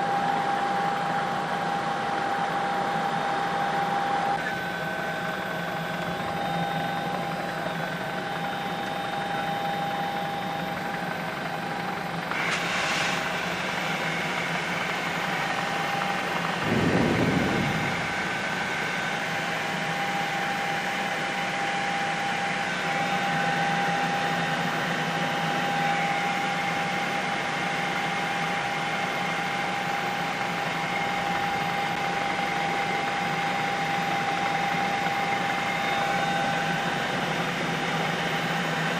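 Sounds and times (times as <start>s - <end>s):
helicopter engine and rotor hum: 0.0s - 38.9s
whining tones: 16.4s - 19.5s
short low rumble: 16.6s - 18.8s.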